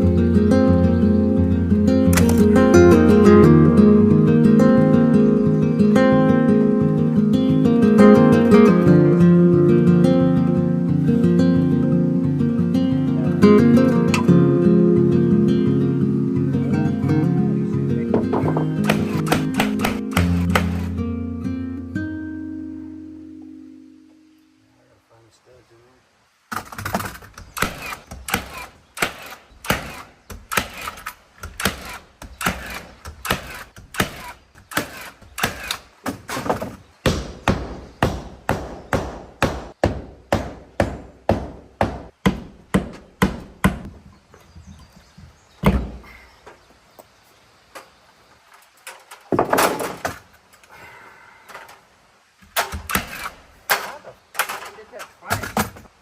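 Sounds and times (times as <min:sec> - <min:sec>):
nail gun shots into plywood: 0:18.4 - 0:20.9, 0:26.6 - 0:43.8, 0:52.6 - 0:54.6.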